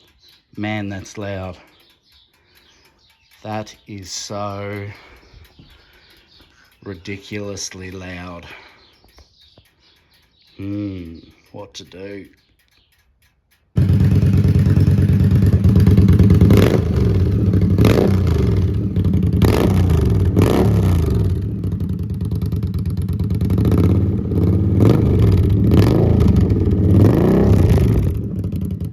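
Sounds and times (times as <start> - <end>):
motorcycle engine revving: 13.8 - 28.9.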